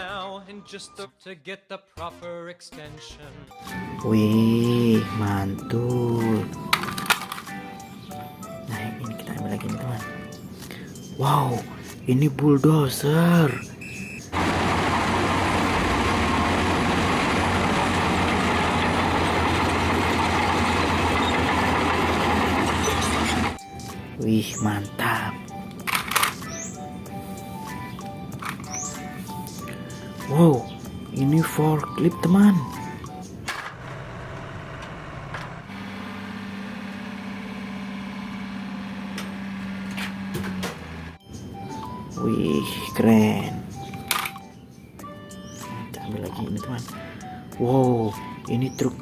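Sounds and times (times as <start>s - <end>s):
bulldozer diesel engine running: 13.8s - 23.6s, 33.7s - 41.2s.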